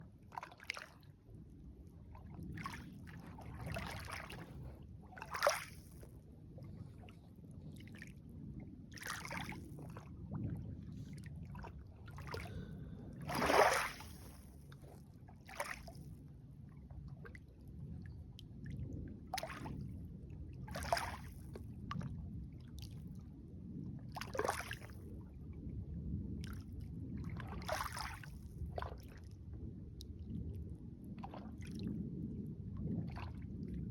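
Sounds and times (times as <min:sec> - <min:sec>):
low steady rumble: 0:00.0 - 0:33.9
lake water lapping and splashing: 0:00.1 - 0:20.0, 0:20.7 - 0:22.0, 0:24.1 - 0:25.1, 0:26.4 - 0:29.4, 0:31.2 - 0:31.9, 0:32.8 - 0:33.8.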